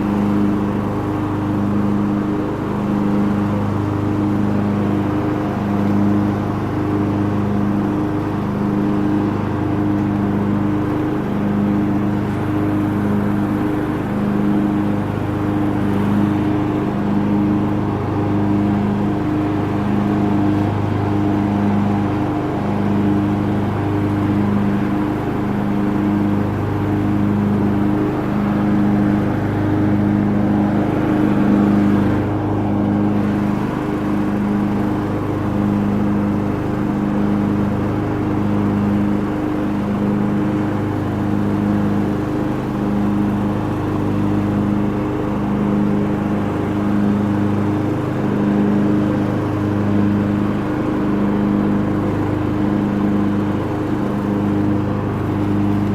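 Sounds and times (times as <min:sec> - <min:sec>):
lawn tractor engine pulsing hum: 0:00.0 - 0:55.9.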